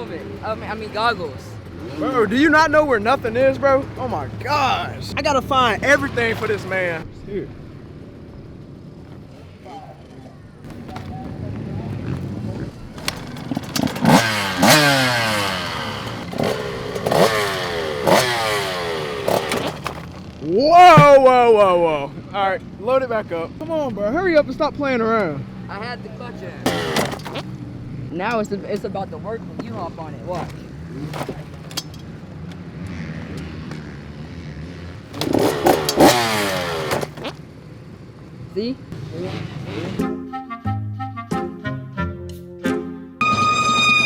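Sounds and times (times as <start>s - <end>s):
two-stroke engine revving: 0.0s - 7.0s, 11.7s - 20.4s, 26.5s - 28.1s, 32.5s - 37.4s, 38.9s - 40.0s.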